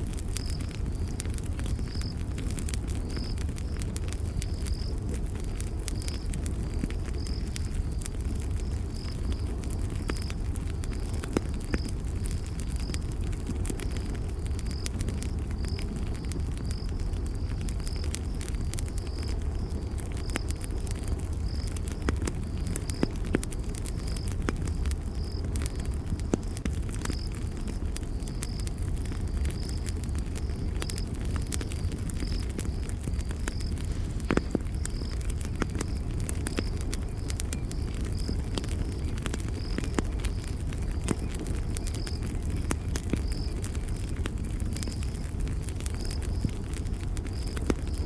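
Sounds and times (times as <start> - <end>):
campfire crackling: 0.0 - 48.0
insect chirping: 0.2 - 2.2, 2.8 - 5.0, 5.9 - 13.2, 13.8 - 26.5, 27.1 - 48.0
high insect chirp: 27.2 - 42.6.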